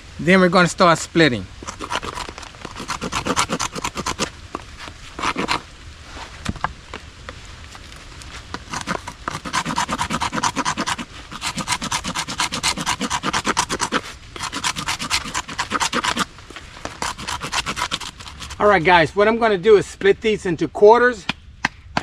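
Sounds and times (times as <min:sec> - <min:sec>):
knife scraping bark off stick: 0:01.6 - 0:05.6, 0:08.5 - 0:18.8.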